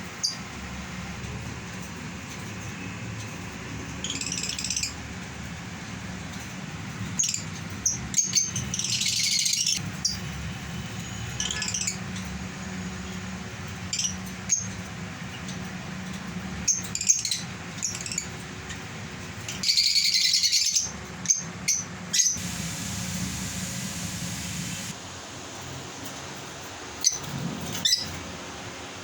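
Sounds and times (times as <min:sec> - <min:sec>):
lovebirds chirping: 0:19.5 - 0:25.0
steady low hum: 0:22.4 - 0:25.3.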